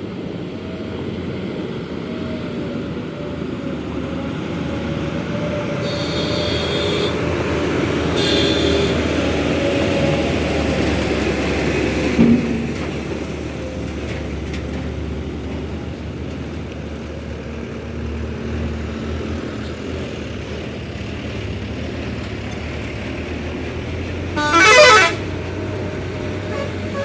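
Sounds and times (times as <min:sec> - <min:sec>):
truck engine droning: 0:00.0 - 0:27.0
truck horn blast: 0:05.8 - 0:09.5, 0:24.3 - 0:27.0.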